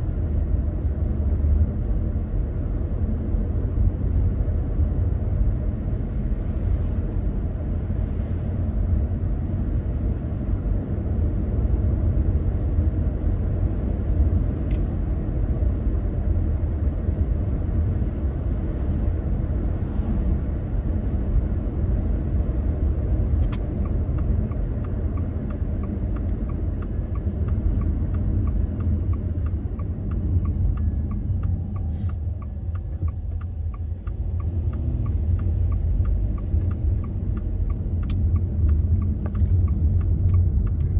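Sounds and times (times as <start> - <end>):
car engine and tyre rumble: 0.0 - 40.9
regular ticking: 25.2 - 40.8.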